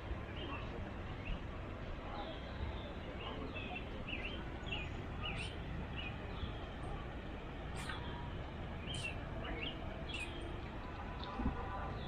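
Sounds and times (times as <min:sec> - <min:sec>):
small birds chirping: 0:02.7 - 0:06.7, 0:07.7 - 0:08.2, 0:08.8 - 0:10.6.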